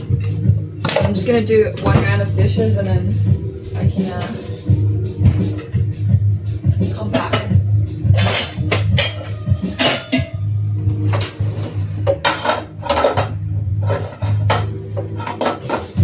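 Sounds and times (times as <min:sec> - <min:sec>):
dishes and cutlery clinking: 0:00.0 - 0:02.2, 0:06.6 - 0:16.0.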